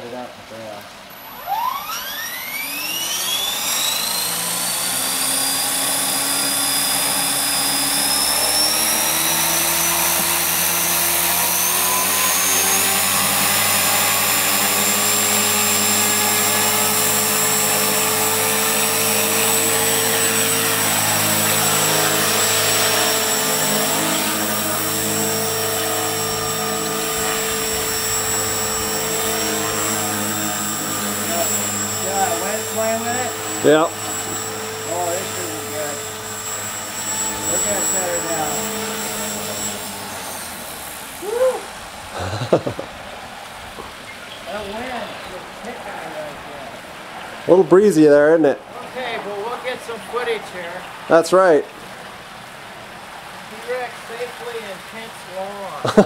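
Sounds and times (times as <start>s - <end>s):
electric helicopter motor whine: 1.0s - 42.9s.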